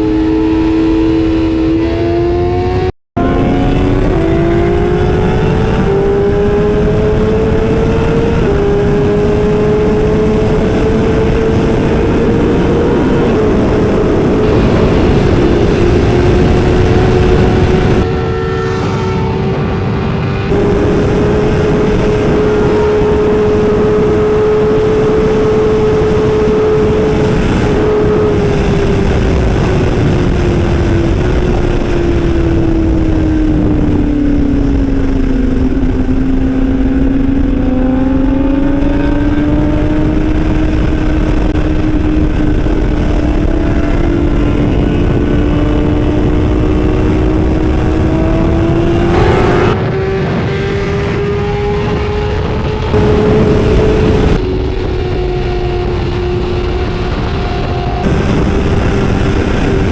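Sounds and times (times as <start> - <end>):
motorcycle engine running: 0.0 - 18.7, 20.4 - 59.9
wind rushing noise: 0.0 - 59.9.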